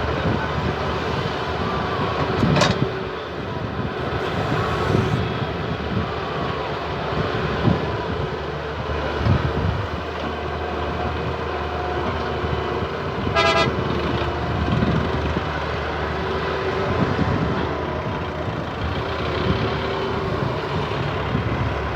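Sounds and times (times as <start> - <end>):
diesel engines running: 0.0 - 21.9
vehicle horn toot: 4.0 - 5.2, 13.3 - 13.8.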